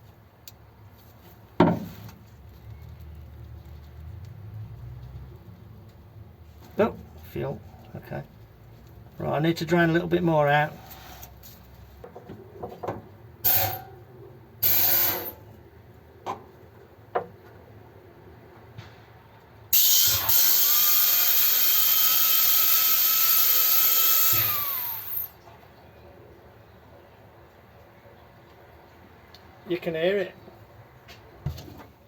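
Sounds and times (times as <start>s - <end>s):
small electric motor whirring: 14.6s - 15.4s, 19.8s - 25.3s.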